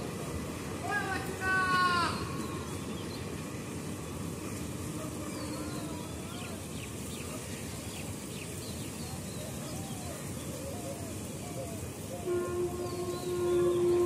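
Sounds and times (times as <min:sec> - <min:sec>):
train rumble: 0:00.0 - 0:14.0
small birds chirping: 0:01.9 - 0:04.6, 0:05.2 - 0:12.2.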